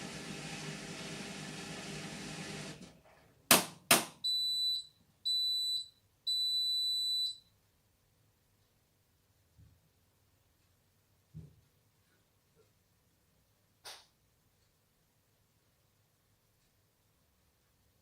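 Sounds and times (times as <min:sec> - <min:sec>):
washing machine drum running: 0:00.0 - 0:02.8.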